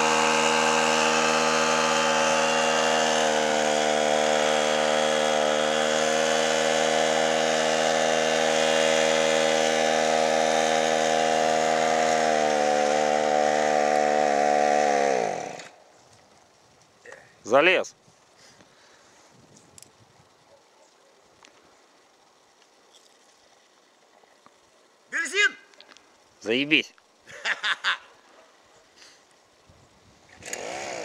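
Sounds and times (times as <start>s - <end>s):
two-stroke engine running: 0.0s - 15.8s, 30.3s - 31.0s.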